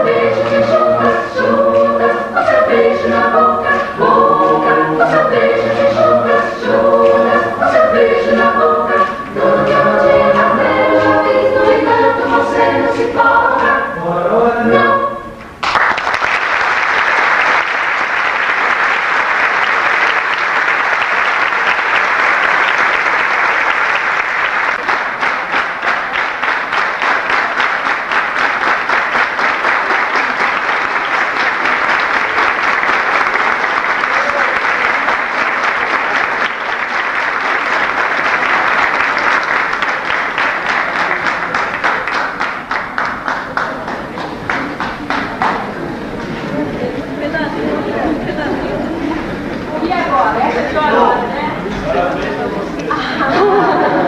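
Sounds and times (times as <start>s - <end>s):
audience applauding: 15.6s - 46.4s.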